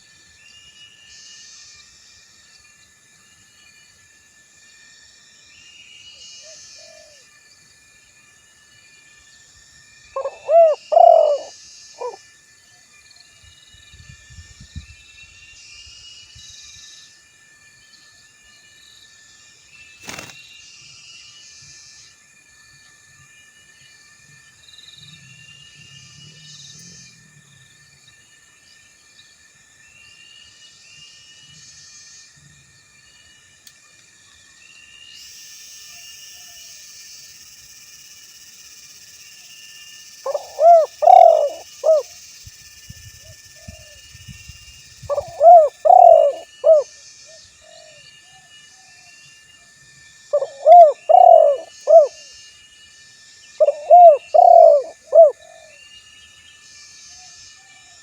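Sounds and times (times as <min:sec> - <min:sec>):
insect buzz: 0:00.0 - 0:58.0
dove cooing: 0:10.2 - 0:12.2, 0:40.3 - 0:42.1, 0:45.0 - 0:46.9, 0:50.4 - 0:52.2, 0:53.6 - 0:55.8
high chirping: 0:40.1 - 0:42.2, 0:44.4 - 0:46.8.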